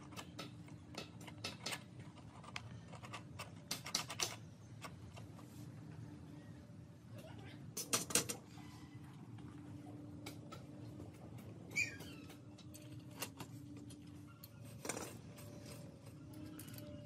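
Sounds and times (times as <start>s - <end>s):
faint steady hum: 0.0s - 17.0s
high chirping squeak: 11.7s - 12.6s.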